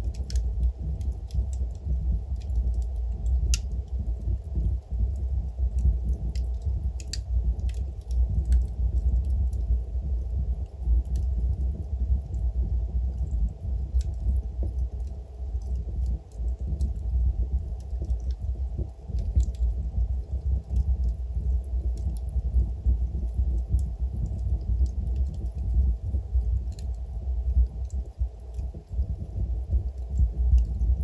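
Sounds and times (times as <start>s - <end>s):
wood fire crackling: 0.0s - 31.0s
sharp pops from fire: 5.8s - 9.6s.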